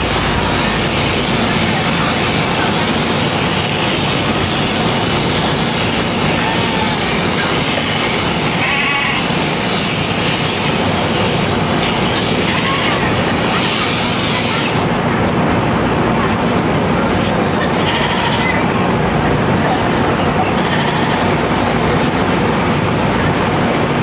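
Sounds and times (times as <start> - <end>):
sheep-shearing clippers running: 0.0 - 15.0, 20.8 - 24.0
sheep bleating: 8.0 - 9.7, 17.8 - 18.6, 20.6 - 21.3.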